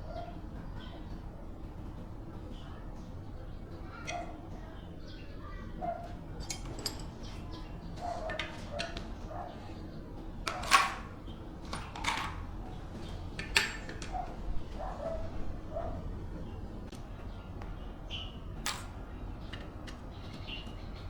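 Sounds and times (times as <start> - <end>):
clinks and knocks on metal parts: 6.2 - 9.3, 10.4 - 12.6, 13.3 - 14.2, 18.6 - 20.1.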